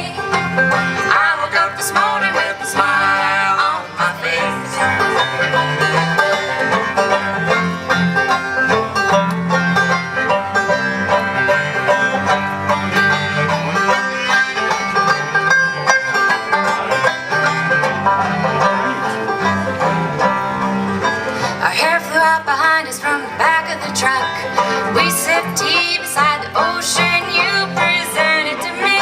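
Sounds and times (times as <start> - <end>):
acoustic string band playing: 0.0 - 29.0.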